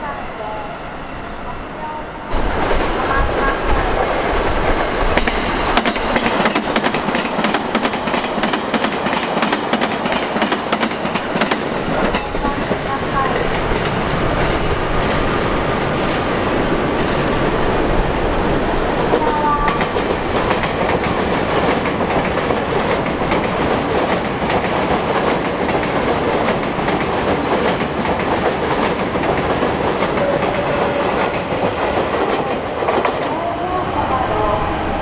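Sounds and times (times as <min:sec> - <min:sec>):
wheels rumbling on rail: 0:00.0 - 0:35.0
wheels clacking over rail joints: 0:04.0 - 0:15.3, 0:18.9 - 0:33.4.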